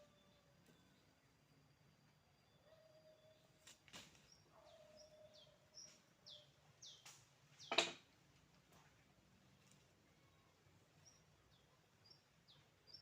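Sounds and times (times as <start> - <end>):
faint bird chirps: 0.0 - 7.8.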